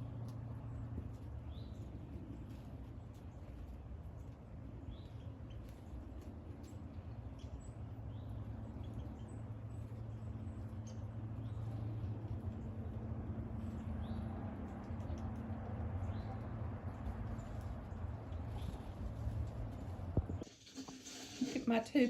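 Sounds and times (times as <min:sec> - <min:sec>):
steady low hum: 0:00.0 - 0:20.5.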